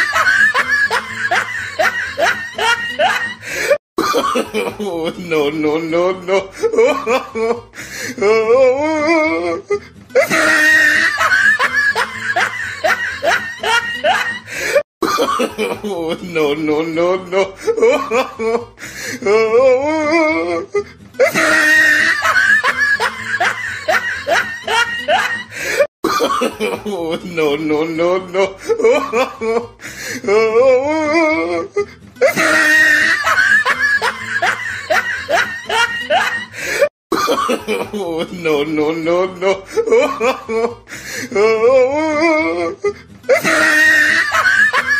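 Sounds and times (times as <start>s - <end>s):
laugh-like yelps: 0.0s - 4.7s, 10.2s - 15.7s, 20.0s - 25.6s, 32.2s - 37.7s, 43.3s - 44.9s
comedy music: 0.0s - 7.6s, 8.2s - 18.6s, 19.3s - 29.6s, 30.3s - 36.6s, 41.4s - 44.9s
shrill cry: 21.2s - 25.5s.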